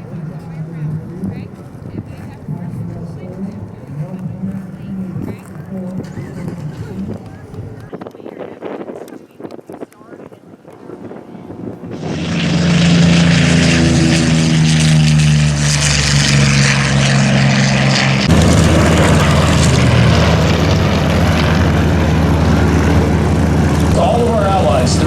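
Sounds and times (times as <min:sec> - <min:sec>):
steady engine drone: 0:00.0 - 0:07.9, 0:10.7 - 0:25.0
propeller plane flying past: 0:00.0 - 0:09.5, 0:10.2 - 0:25.0.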